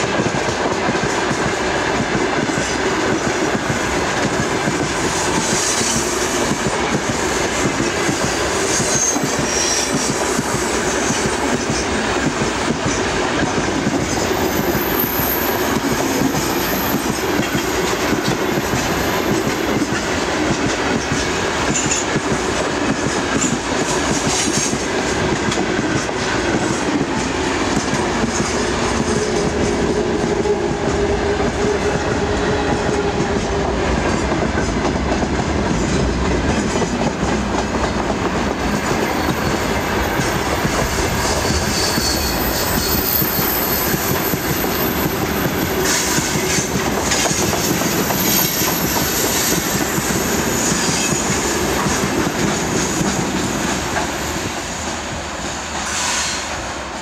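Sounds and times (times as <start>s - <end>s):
train wheels clattering over rail joints: 0.0s - 56.5s
wheel flange squeal: 40.9s - 46.6s.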